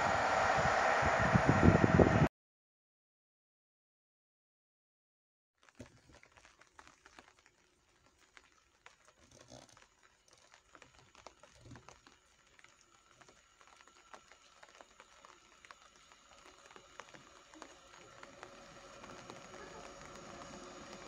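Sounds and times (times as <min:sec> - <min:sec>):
distant train hum: 0:00.0 - 0:02.3
raindrops pattering: 0:05.6 - 0:21.0.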